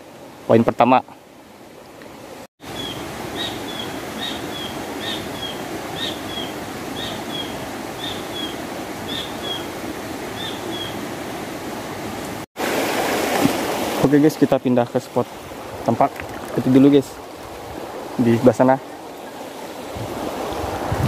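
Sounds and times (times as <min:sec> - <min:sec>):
bird calling: 0:02.7 - 0:09.8, 0:10.4 - 0:11.0.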